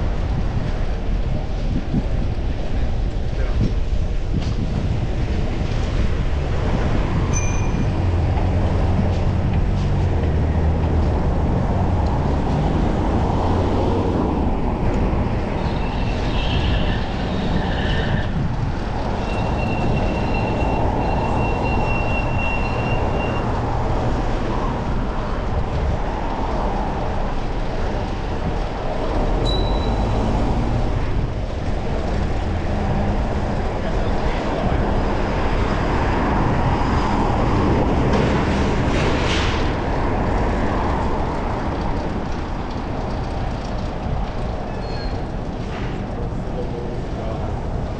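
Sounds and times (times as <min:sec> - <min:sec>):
city traffic rumble: 0:00.0 - 0:47.9
thin high squeal: 0:07.3 - 0:07.9, 0:29.4 - 0:30.2.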